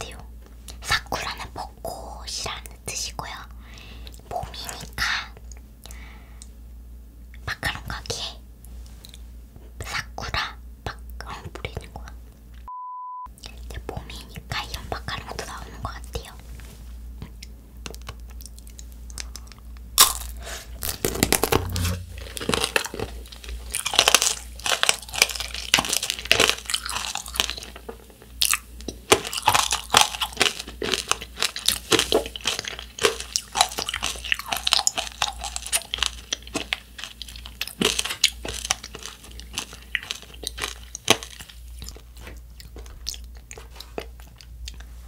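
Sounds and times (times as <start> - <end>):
crunchy candy shell chewing: 17.8 - 44.9
bite cracking hard candy: 19.1 - 42.0.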